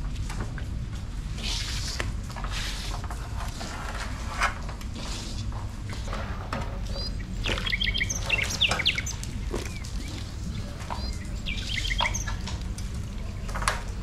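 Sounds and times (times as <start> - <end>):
bird chirping: 6.9 - 12.4.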